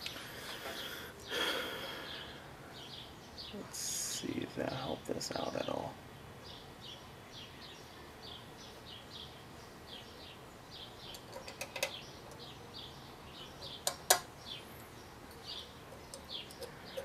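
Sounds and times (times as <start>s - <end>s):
metal parts clicking: 11.1s - 12.4s.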